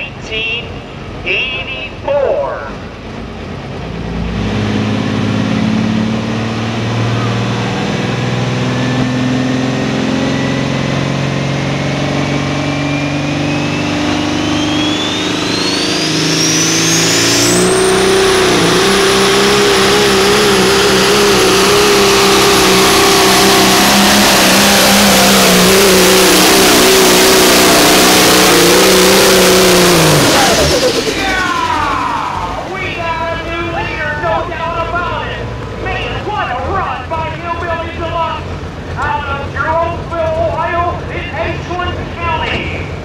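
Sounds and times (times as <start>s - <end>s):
truck engine under load: 0.0s - 43.0s
turbocharger whistle: 4.8s - 33.8s.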